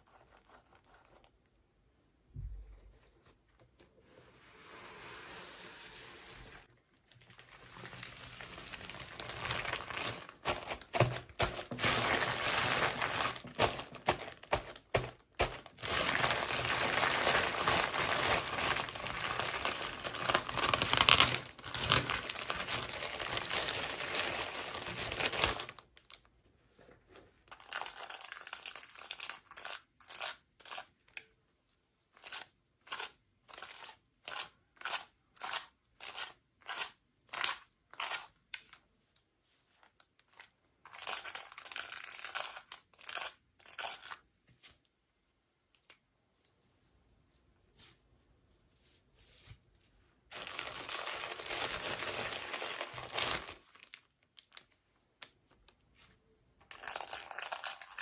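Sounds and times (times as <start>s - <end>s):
packaging crinkling and tearing: 7.1s - 26.3s, 50.3s - 54.8s, 56.7s - 58.0s.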